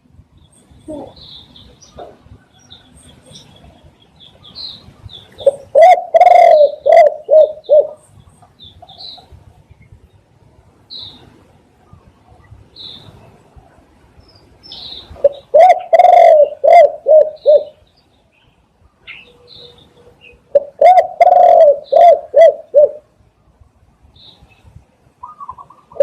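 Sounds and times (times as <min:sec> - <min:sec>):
dove cooing: 0:05.4 - 0:08.0, 0:15.2 - 0:17.8, 0:20.5 - 0:23.1, 0:25.2 - 0:26.0.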